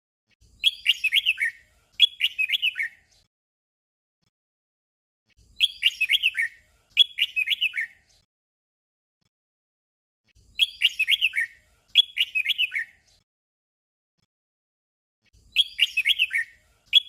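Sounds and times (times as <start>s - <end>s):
bird singing whistled notes: 0.5s - 3.2s, 5.4s - 8.1s, 10.4s - 13.2s, 15.4s - 17.0s.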